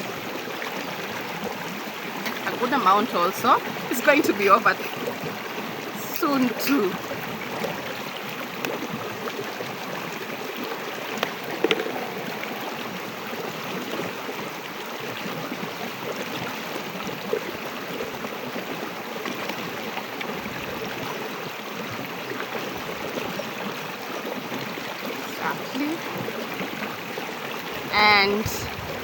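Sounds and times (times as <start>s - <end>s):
rushing noise like running water: 0.0s - 29.0s.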